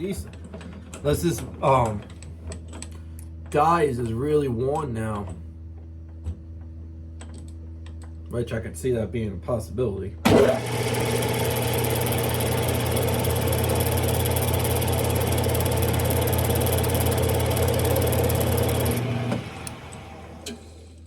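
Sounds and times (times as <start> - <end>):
rasping metal cutting: 10.3 - 20.7
lathe motor hum: 10.3 - 21.0.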